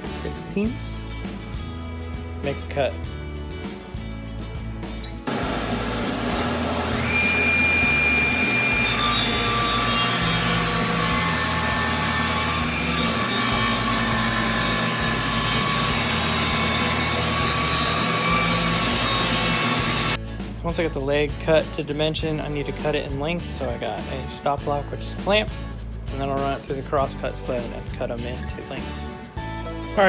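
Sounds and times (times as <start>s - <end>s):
table saw cutting wood: 5.3s - 20.2s.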